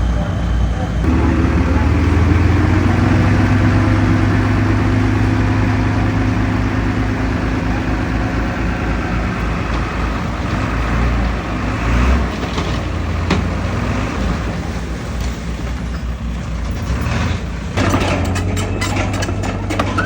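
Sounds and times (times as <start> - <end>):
heavy diesel engine running: 0.0 - 20.0
rapid metallic clicks and clanks: 16.5 - 20.0.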